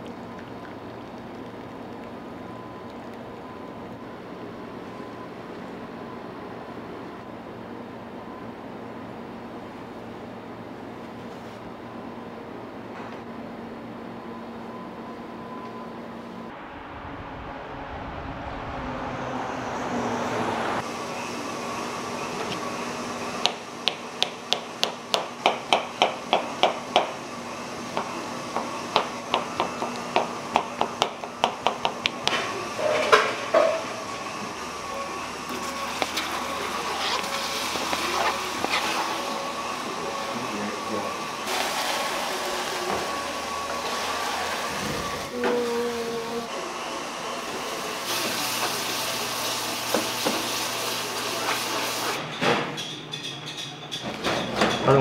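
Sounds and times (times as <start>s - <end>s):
kitchen machinery humming: 19.6s - 55.0s.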